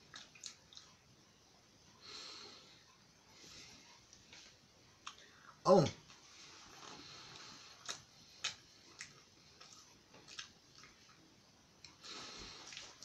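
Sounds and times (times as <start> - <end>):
soft breath: 2.0 - 4.0, 5.2 - 5.6, 12.0 - 13.0
person chewing crunchy food: 6.8 - 13.0.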